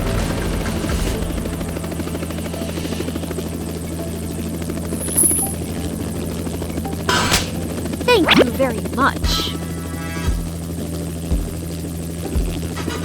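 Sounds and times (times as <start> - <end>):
helicopter rotor chop: 0.0 - 13.0
high-pitched tone: 1.8 - 6.2.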